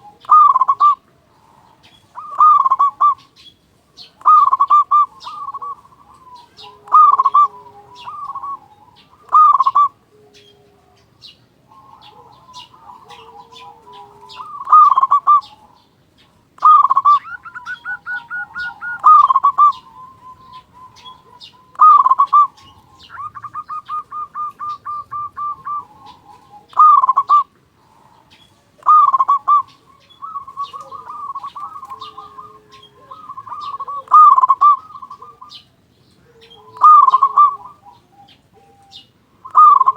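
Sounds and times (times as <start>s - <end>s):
dove cooing with trilled runs: 0.0s - 39.9s
quieter lower cooing: 0.0s - 39.9s
faint high chirps: 28.2s - 39.9s.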